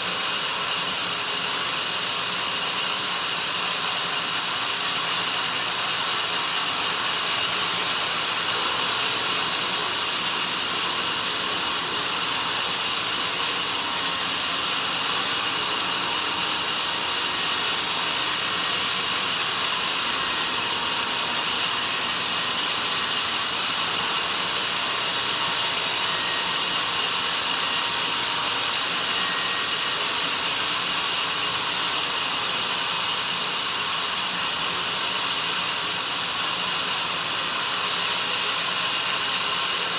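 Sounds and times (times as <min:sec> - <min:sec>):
band saw cutting log: 0:01.3 - 0:32.3.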